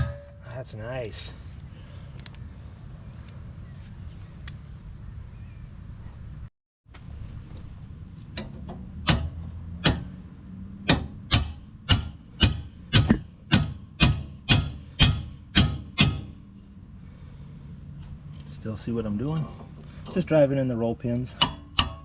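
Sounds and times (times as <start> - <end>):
hammer striking steel pins: 0.0 - 0.5, 8.4 - 10.1, 10.8 - 16.4, 21.3 - 22.0.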